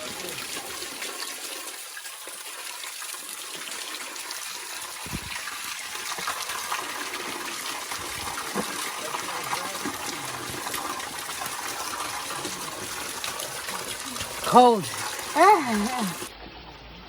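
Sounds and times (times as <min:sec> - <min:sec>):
spring water splashing: 0:00.0 - 0:16.4
dull thump: 0:05.0 - 0:05.4.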